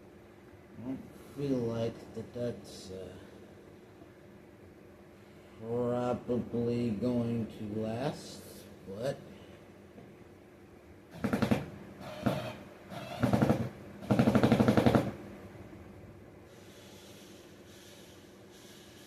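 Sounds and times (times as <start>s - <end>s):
power drill rattling: 11.2s - 14.9s.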